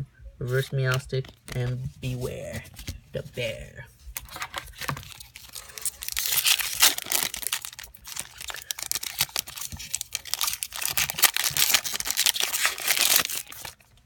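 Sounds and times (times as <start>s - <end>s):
foil wrapper crinkling: 4.2s - 14.0s.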